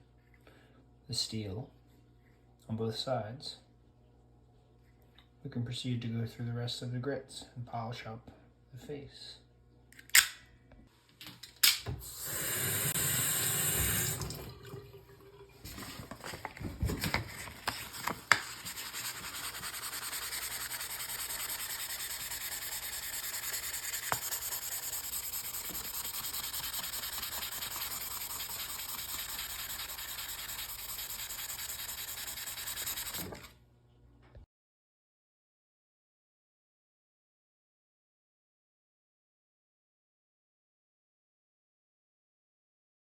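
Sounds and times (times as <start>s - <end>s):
sandpaper rubbing on knife blade: 17.4s - 33.5s.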